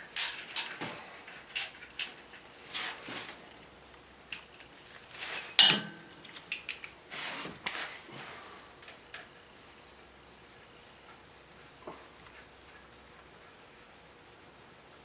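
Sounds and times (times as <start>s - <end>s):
hand tools clinking on metal: 5.5s - 7.0s.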